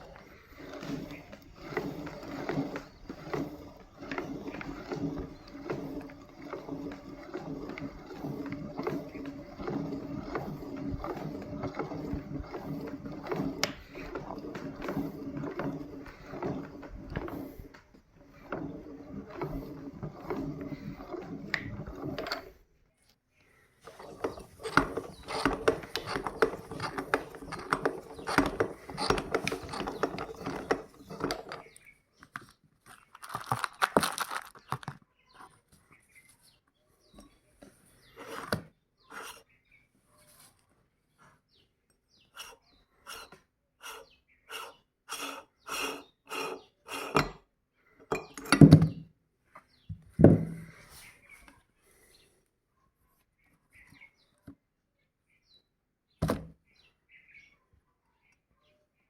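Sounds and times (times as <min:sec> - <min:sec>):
meat grinder running: 0:00.0 - 0:22.5, 0:23.9 - 0:31.8, 0:42.4 - 0:47.2.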